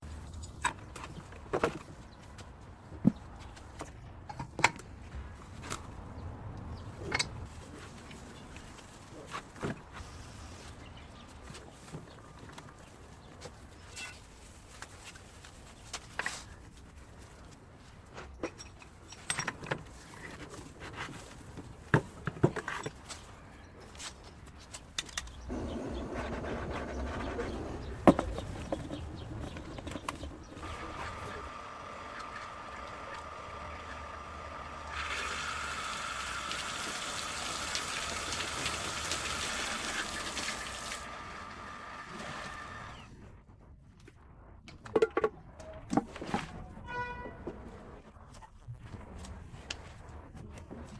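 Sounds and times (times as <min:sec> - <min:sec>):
water pump whine: 0:30.6 - 0:43.1
water rushing through pipes: 0:30.6 - 0:43.1.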